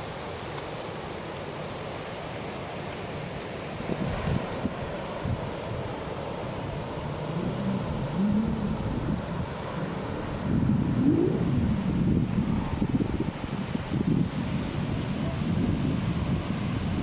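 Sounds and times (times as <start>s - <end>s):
wind rumbling on microphone: 3.8s - 17.0s.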